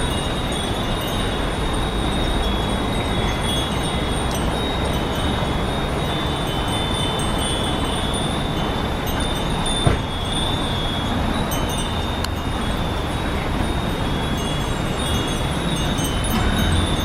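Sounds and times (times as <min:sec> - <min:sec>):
metal wind chimes ringing: 0:00.0 - 0:17.0
short thump: 0:09.8 - 0:10.0.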